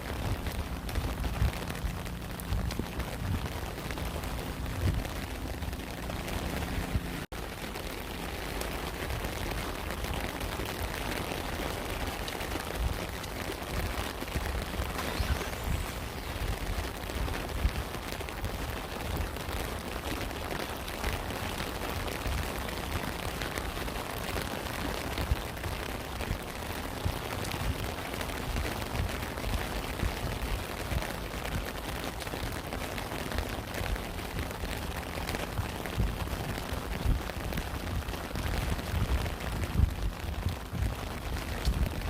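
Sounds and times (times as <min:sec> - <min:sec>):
low rumble: 0:00.0 - 0:19.5
steady rain falling: 0:00.0 - 0:42.0.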